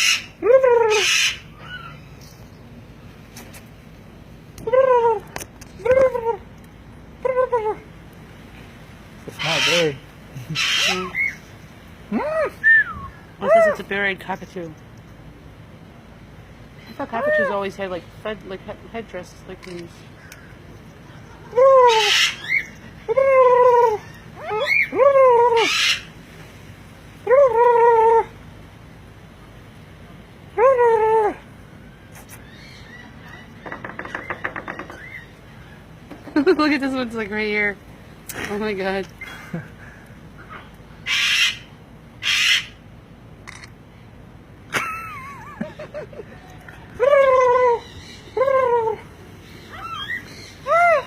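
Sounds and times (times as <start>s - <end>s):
parrot screeching: 0.0s - 2.0s, 9.4s - 10.0s, 10.6s - 11.4s, 21.8s - 23.0s, 23.8s - 26.1s, 41.0s - 42.8s, 49.5s - 51.0s
parrot calling: 0.0s - 2.2s, 9.3s - 13.8s, 20.2s - 26.2s, 30.6s - 36.0s, 39.2s - 42.8s, 46.3s - 51.0s
parrot wavering whistled call: 12.6s - 13.2s, 21.9s - 22.8s, 24.1s - 25.0s, 25.6s - 26.1s, 49.6s - 51.0s.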